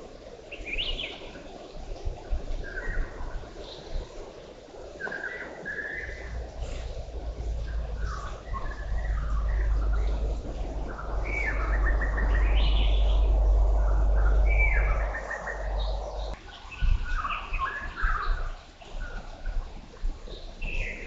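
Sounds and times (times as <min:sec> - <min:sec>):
birds chirping and singing: 0:06.0 - 0:18.2
steady low rumble: 0:06.1 - 0:16.4.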